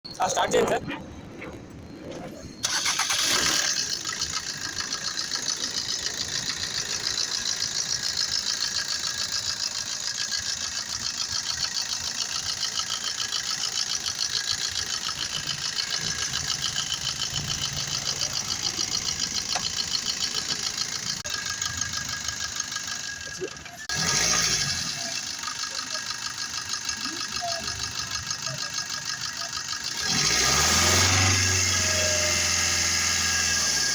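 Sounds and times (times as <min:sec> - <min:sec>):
car engine idling: 0:00.1 - 0:33.9
fast ticking engine clatter: 0:02.6 - 0:33.9.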